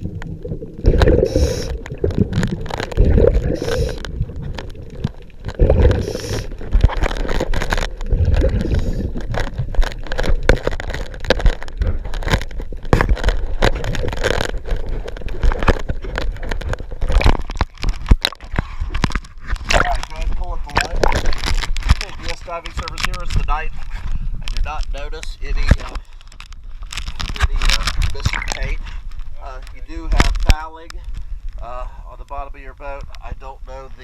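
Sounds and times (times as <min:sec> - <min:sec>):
underwater bubbles gurgling: 0:00.0 - 0:23.1
scrapes: 0:00.0 - 0:31.3
crackling clicks: 0:00.0 - 0:31.6, 0:32.2 - 0:34.0.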